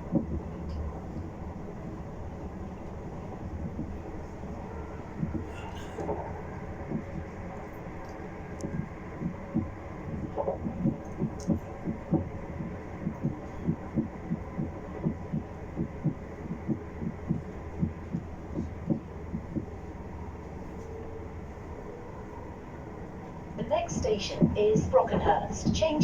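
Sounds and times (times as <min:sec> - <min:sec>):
train running hum: 0:00.0 - 0:26.0.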